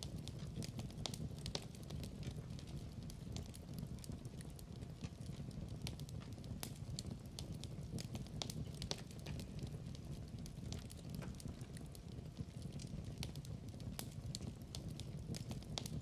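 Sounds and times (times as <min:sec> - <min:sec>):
low rush of burning fire: 0:00.0 - 0:16.0
wood fire crackling: 0:00.0 - 0:16.0.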